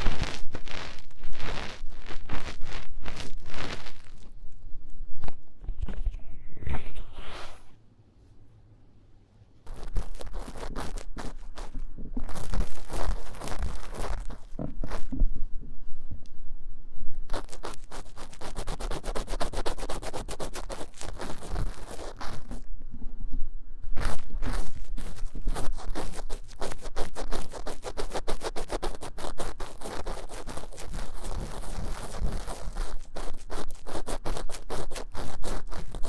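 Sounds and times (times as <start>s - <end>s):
tool scratching microphone ear: 0.0s - 4.4s, 5.6s - 7.8s, 9.7s - 15.3s, 17.3s - 22.7s, 24.0s - 36.0s.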